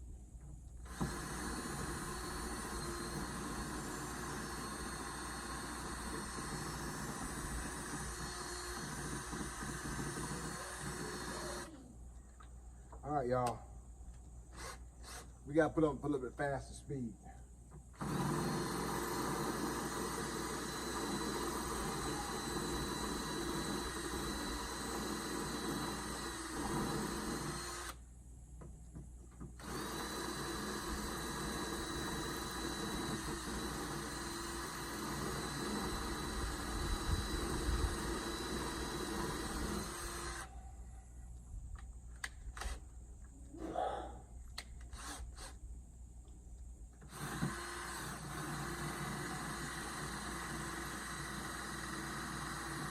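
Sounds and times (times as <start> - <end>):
electric drill boring: 0.8 - 11.8, 18.0 - 28.0, 29.6 - 40.5, 44.9 - 45.6, 47.0 - 52.9.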